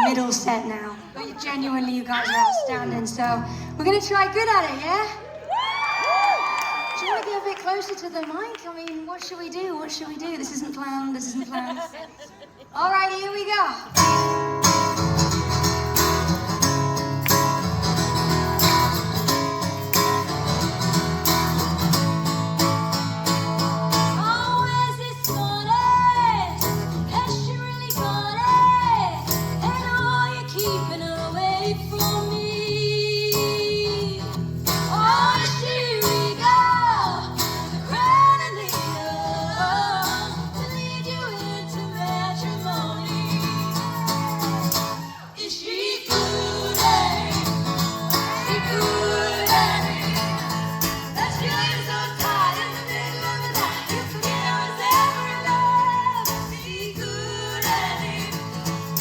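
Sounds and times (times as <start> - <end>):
guitar playing: 14.0 - 45.1, 46.1 - 59.0
person singing: 45.6 - 59.0.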